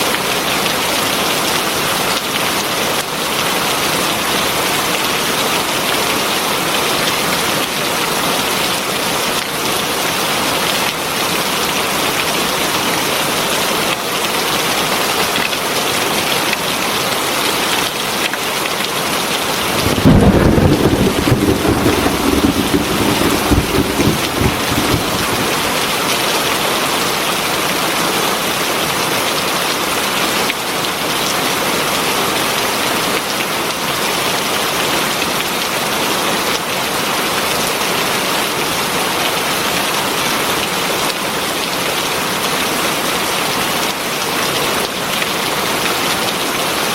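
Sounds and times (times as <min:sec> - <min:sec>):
heavy rain: 0:19.4 - 0:26.5
thunder rumbling: 0:19.5 - 0:26.0.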